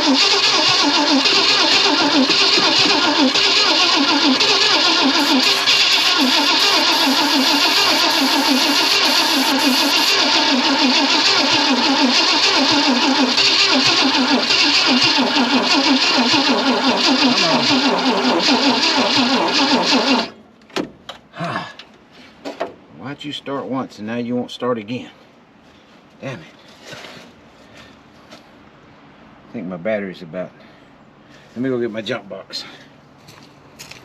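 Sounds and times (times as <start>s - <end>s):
starter cranking engine: 0.0s - 20.4s.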